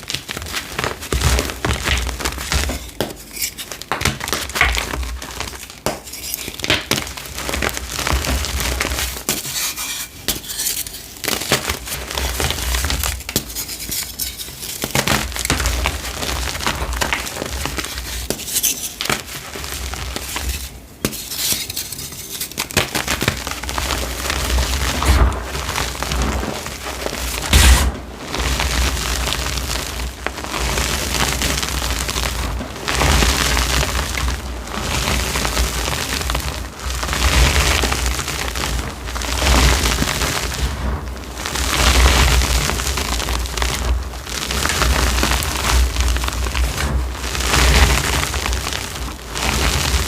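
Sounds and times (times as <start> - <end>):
chalk crunching by hand: 8.9 - 25.4, 26.3 - 28.0.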